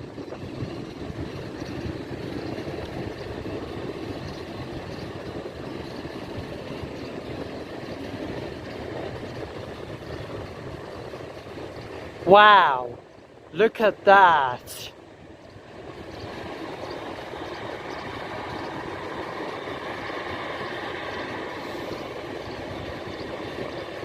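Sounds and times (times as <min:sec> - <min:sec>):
jet engine rumble: 0:15.6 - 0:23.8.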